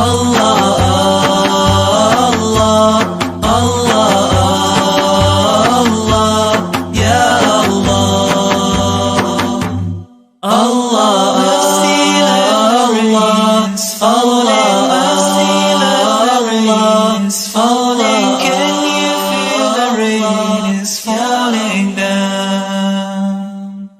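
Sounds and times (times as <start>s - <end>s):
steady low drone: 0.0s - 10.0s
wordless vocal melody: 0.0s - 23.9s.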